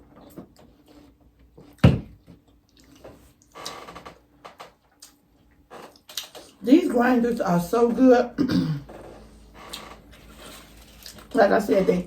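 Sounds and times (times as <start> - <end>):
soft clicks and mouth sounds: 4.9 - 5.2.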